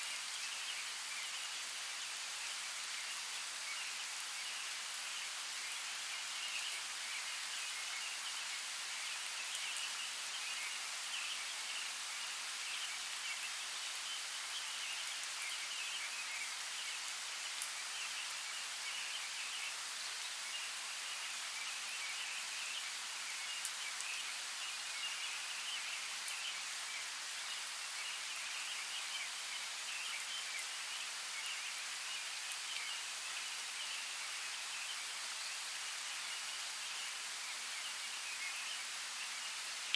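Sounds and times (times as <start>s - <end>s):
steady rain hiss: 0.0s - 39.9s
rain drops ticking: 3.6s - 20.4s.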